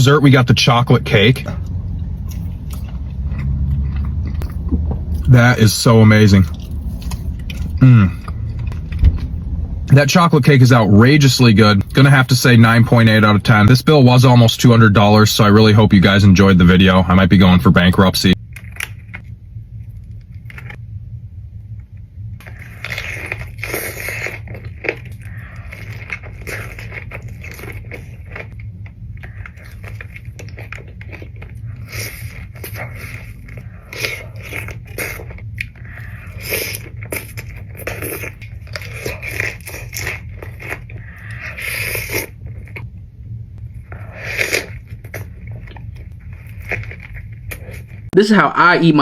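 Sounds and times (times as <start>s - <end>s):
low background hum: 0.0s - 49.0s
crunchy biting and chewing: 1.4s - 9.3s, 22.4s - 42.8s, 43.8s - 48.1s.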